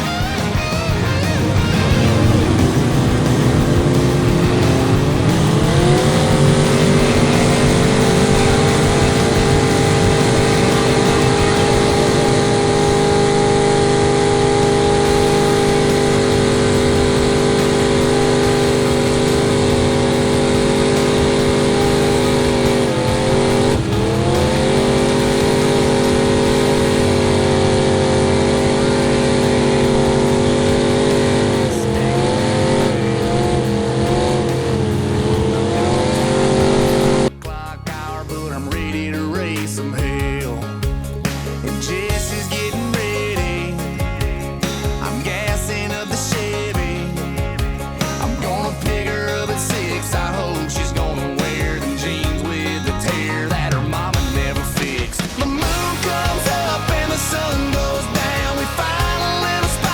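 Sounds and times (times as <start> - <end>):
truck engine revving high: 0.0 - 59.9.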